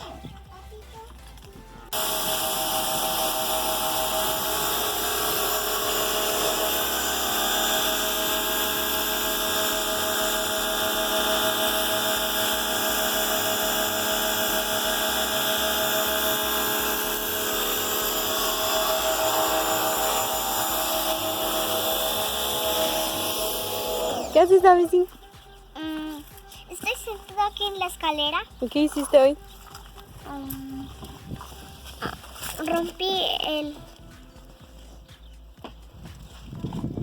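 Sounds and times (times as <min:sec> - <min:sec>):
pressure washer spraying: 0:01.9 - 0:24.8.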